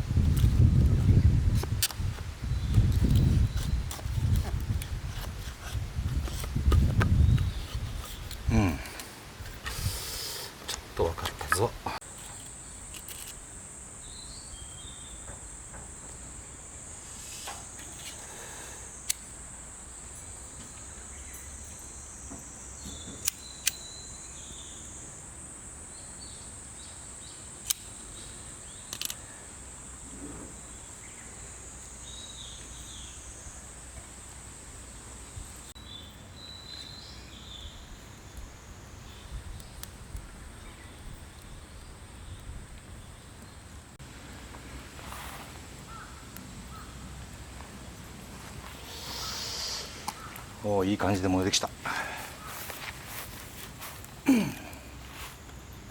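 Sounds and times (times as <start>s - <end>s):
insect chirring: 0.1s - 44.5s, 45.6s - 55.9s
sharp clicks: 27.6s - 28.0s, 28.9s - 29.3s.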